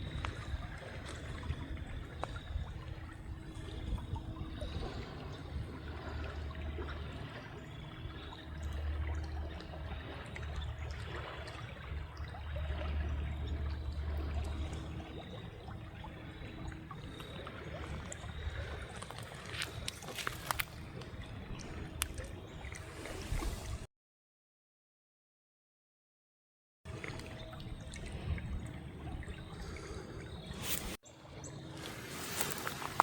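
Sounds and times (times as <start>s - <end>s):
river water flowing: 0.0s - 23.9s, 26.9s - 33.0s.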